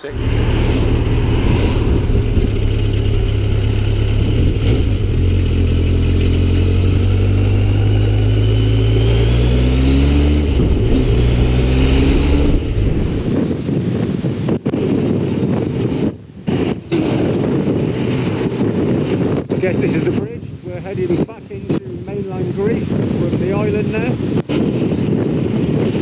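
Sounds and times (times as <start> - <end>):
motorcycle engine accelerating: 0.0 - 19.4.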